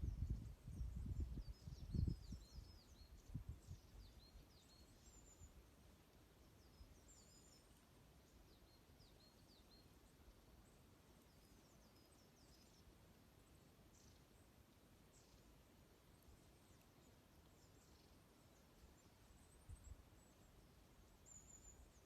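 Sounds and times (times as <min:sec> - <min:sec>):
small birds twittering: 0:00.0 - 0:22.0.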